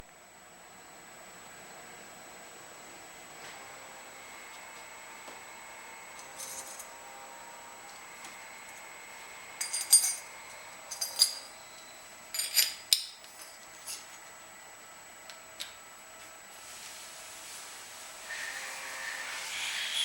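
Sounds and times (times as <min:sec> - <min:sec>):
faint hum: 0:00.0 - 0:20.0
small metal parts clinking: 0:12.3 - 0:14.0.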